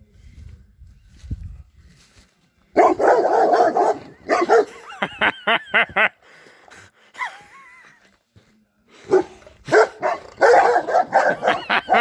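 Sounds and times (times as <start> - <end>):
dog barking: 2.8 - 4.8, 9.0 - 12.0.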